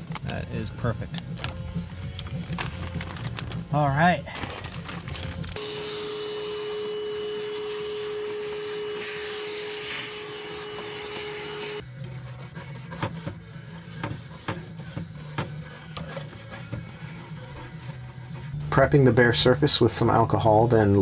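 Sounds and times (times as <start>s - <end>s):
small electric tool humming: 5.6s - 11.8s
scraping and tapping strokes: 10.8s - 21.0s.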